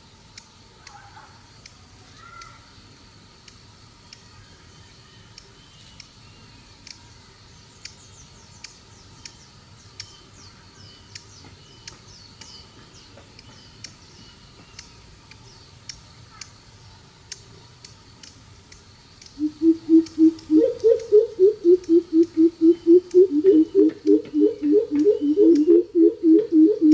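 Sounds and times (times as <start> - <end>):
steady high hum: 16.7 - 26.9
high falling chirps: 18.7 - 26.9
bird deep hooting call: 19.4 - 26.9.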